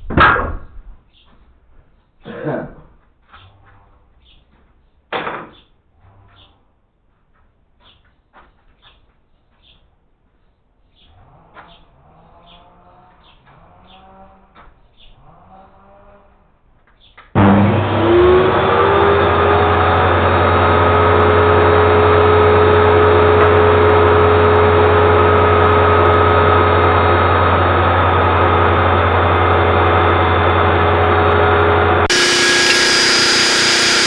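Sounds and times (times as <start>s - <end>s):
electric saw motor whining: 17.4s - 34.0s.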